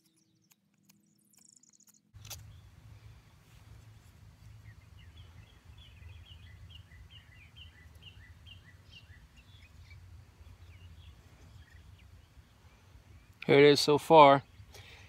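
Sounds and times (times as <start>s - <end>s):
songbird chirping: 0.0s - 15.0s
low steady rumble: 2.2s - 13.4s.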